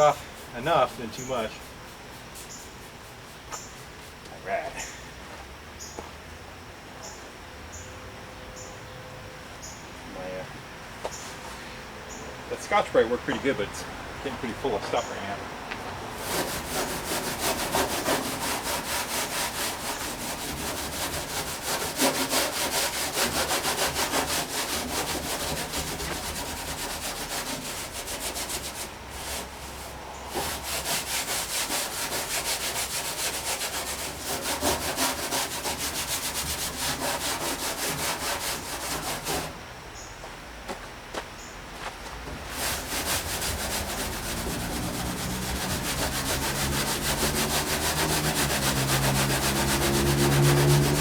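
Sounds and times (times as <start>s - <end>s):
abrasive pad scrubbing metal: 0.0s - 4.2s, 16.2s - 39.6s, 42.4s - 51.0s.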